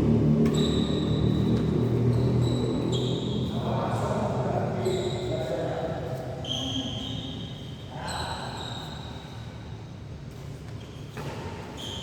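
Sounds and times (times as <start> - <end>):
low rumble of large hall: 0.0 - 11.8
shoes squeaking on court floor: 0.4 - 3.6, 10.8 - 12.0.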